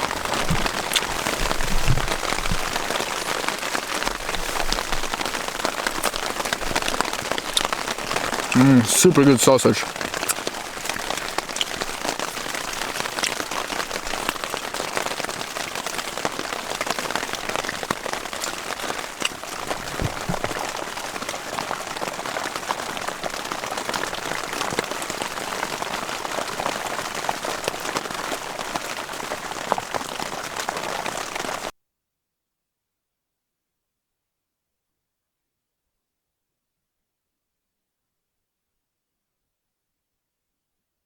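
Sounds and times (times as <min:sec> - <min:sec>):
heavy rain on a tarp: 0:00.0 - 0:31.7.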